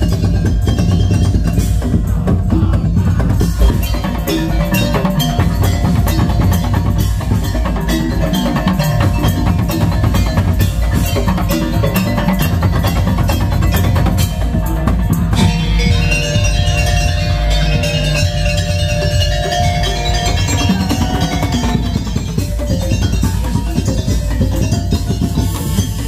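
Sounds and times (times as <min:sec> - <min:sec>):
wooden slit-drum beats: 0:00.0 - 0:26.0
steady low bass: 0:01.9 - 0:04.8
ringing mallet-struck metal bars: 0:03.4 - 0:26.0.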